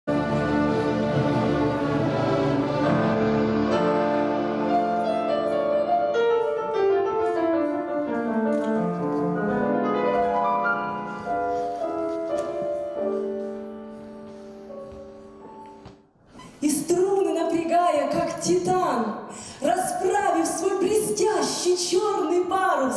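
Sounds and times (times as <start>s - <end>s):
grand piano playing classical piece: 0.1s - 16.2s.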